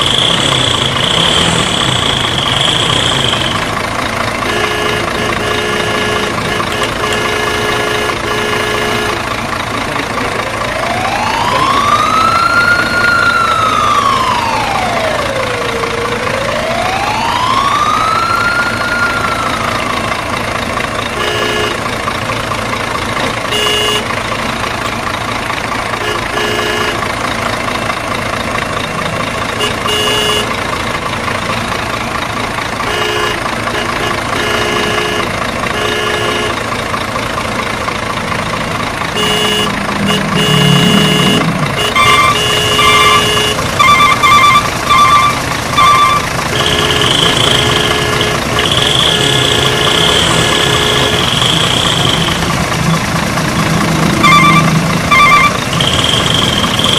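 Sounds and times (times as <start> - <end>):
short electronic beeps: 0.0 - 3.8, 39.2 - 52.6, 54.0 - 56.9
wailing siren: 0.0 - 7.2, 10.4 - 20.3, 39.2 - 56.9
toy engine noise: 0.0 - 20.2, 39.1 - 56.9.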